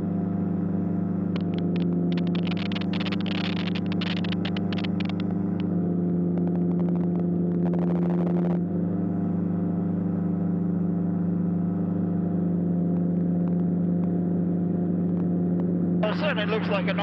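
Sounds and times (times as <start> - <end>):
aeroplane engine and propeller: 0.0 - 17.0
crackling hiss: 1.4 - 5.3.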